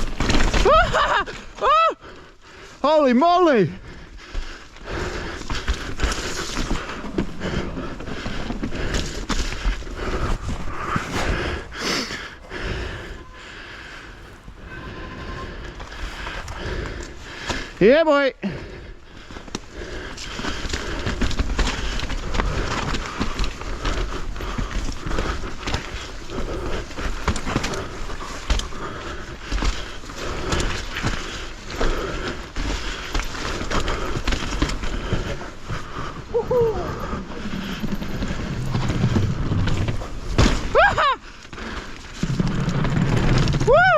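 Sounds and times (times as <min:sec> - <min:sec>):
bike knocks and rattles: 0:00.0 - 0:01.8, 0:19.4 - 0:43.9
bike tyre rumble over dirt: 0:00.0 - 0:02.8, 0:03.4 - 0:17.8, 0:18.5 - 0:43.9
sharp knocks over terrain: 0:38.7 - 0:41.0.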